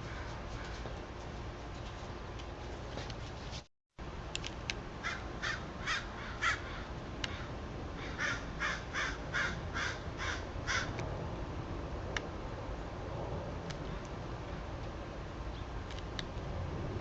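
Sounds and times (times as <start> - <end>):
crow cawing: 5.0 - 10.9.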